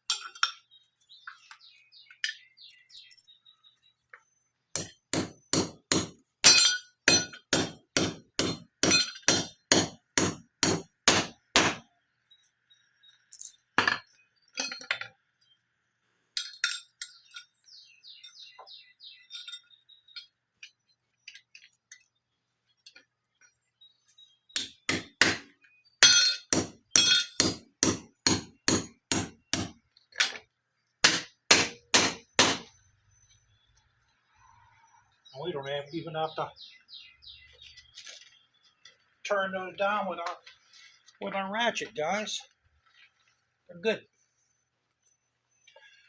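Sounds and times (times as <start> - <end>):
hammer striking metal anchor: 4.8 - 11.8, 24.6 - 29.8, 31.0 - 32.7.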